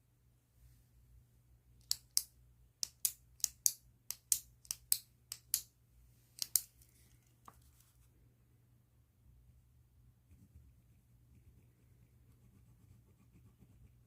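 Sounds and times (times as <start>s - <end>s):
pen scratching on paper: 11.4s - 14.0s.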